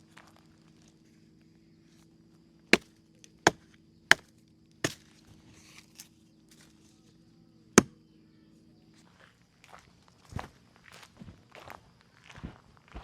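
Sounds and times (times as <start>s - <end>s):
axe chopping wood: 2.7s - 5.1s.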